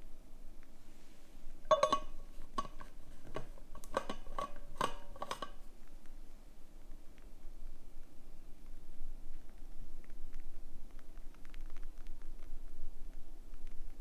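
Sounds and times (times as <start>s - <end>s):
cups and utensils clinking: 1.7s - 5.7s.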